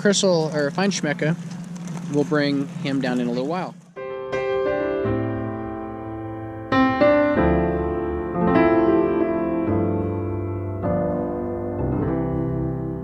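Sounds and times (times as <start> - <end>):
slow piano chords: 4.0 - 13.0.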